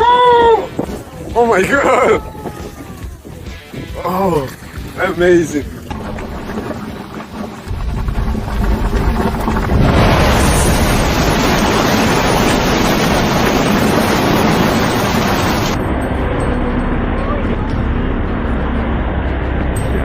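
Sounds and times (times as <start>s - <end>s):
loud rushing noise: 7.7s - 16.4s.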